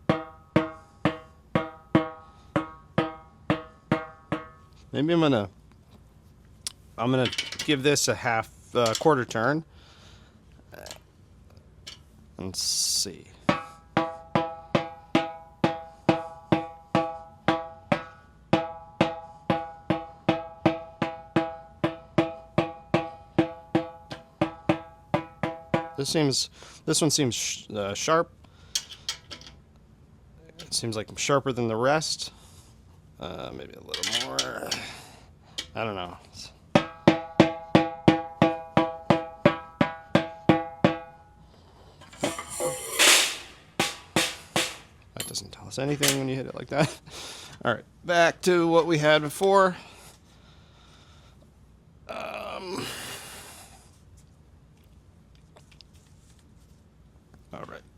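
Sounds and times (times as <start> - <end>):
snare drum hard buzzy hits: 0.0 - 4.6, 13.5 - 26.2, 42.2 - 44.9.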